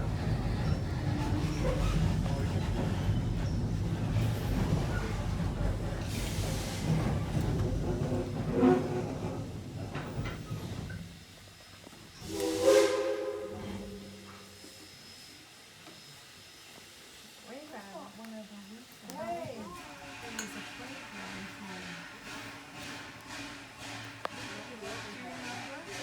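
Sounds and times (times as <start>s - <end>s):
train rumbling on track: 0.0s - 26.0s
steam hiss with pitched tone: 10.4s - 26.0s.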